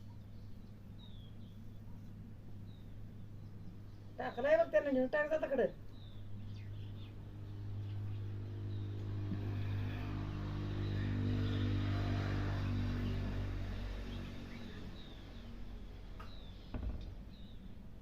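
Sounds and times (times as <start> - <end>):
faint bird chirps: 0.0 - 4.8
vehicle engine passing by: 6.7 - 16.1.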